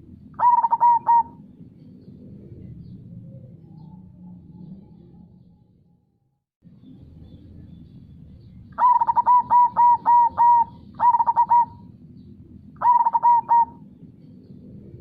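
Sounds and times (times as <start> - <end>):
dove cooing: 0.0 - 3.9, 8.8 - 12.0, 12.8 - 14.0
low background rush: 0.0 - 6.0, 6.6 - 15.0.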